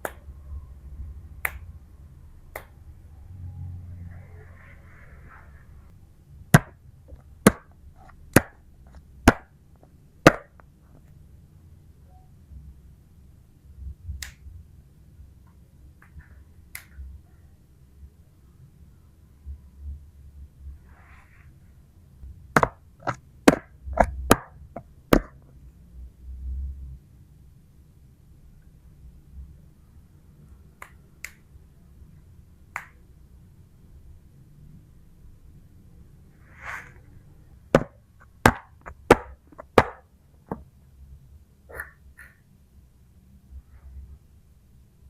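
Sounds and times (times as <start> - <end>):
sharp taps: 6.6 - 7.7, 22.6 - 25.4, 37.8 - 40.6.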